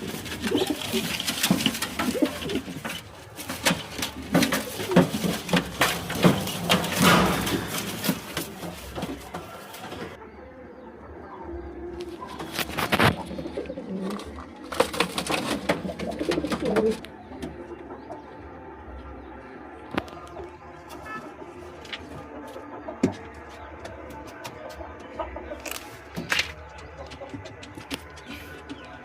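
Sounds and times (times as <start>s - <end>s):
wings fluttering: 0.0s - 10.2s
pigeons cooing: 0.0s - 23.6s.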